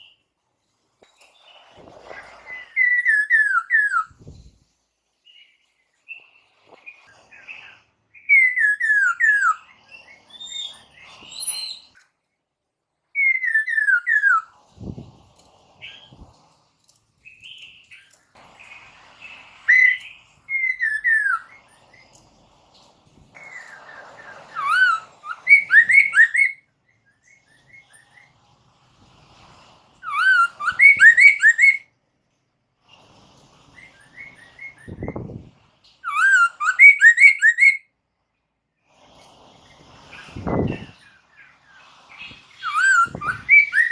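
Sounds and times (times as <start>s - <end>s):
soft bird chirps: 1.1s - 4.6s, 5.2s - 12.2s, 13.2s - 16.4s, 17.2s - 28.7s, 30.0s - 31.9s, 33.6s - 37.8s, 39.6s - 43.9s
bird singing whistled notes: 2.4s - 4.5s, 8.2s - 12.0s, 13.2s - 14.5s, 19.7s - 21.6s, 23.4s - 28.0s, 30.0s - 31.9s, 36.0s - 37.8s, 42.2s - 43.9s.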